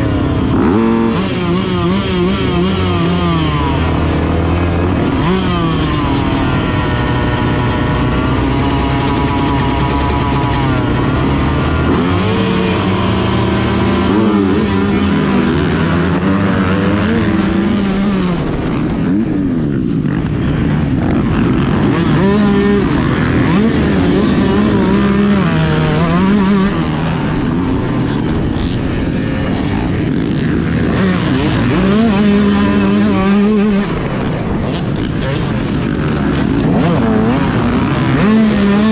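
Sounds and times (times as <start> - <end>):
motocross bike engine revving: 0.0 - 38.9
steady rush of noise: 0.0 - 38.9.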